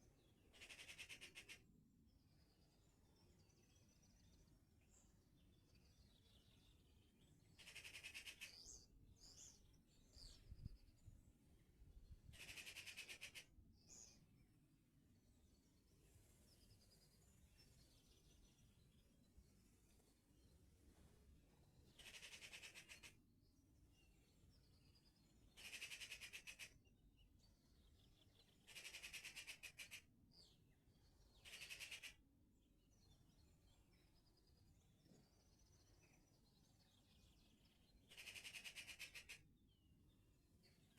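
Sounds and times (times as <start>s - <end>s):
faint bird chirps: 0.0s - 20.7s, 21.6s - 40.9s
bird chirps: 33.0s - 40.9s.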